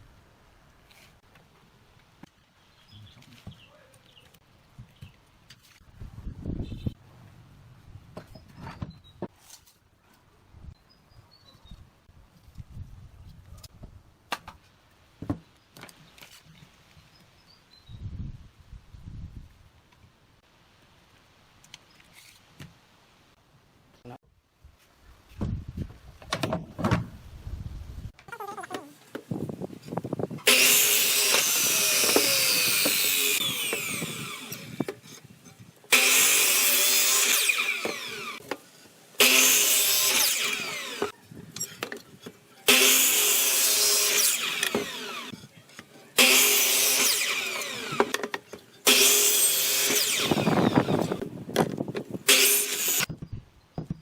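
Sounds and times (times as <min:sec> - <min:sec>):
saw cutting through bamboo: 0:30.4 - 0:35.3, 0:35.9 - 0:38.5, 0:39.2 - 0:51.2, 0:52.2 - 0:53.1.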